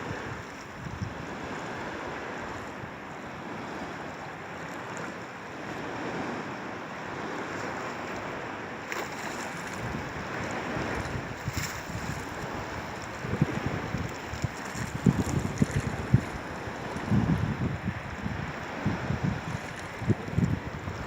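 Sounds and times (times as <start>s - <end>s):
sea waves washing in: 0.0s - 21.0s
wind on microphone: 0.0s - 21.0s.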